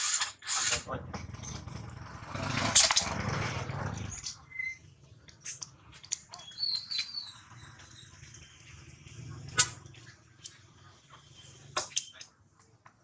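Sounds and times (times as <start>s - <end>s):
high chirping animal call: 6.3s - 8.2s.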